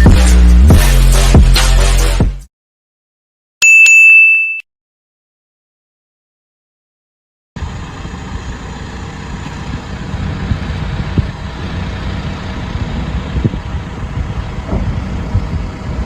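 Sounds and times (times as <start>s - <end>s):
vehicle engine and road rumble: 7.6s - 16.0s.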